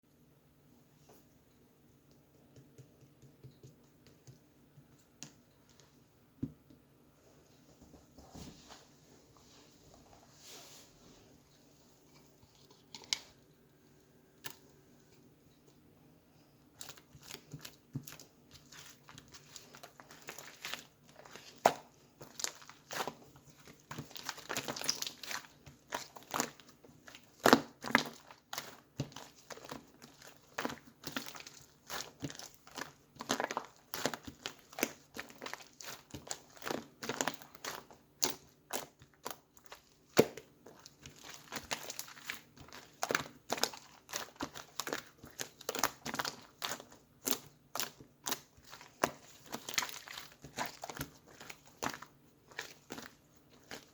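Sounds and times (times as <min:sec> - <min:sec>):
slime squishing wet clicks: 0:16.8 - 0:53.9.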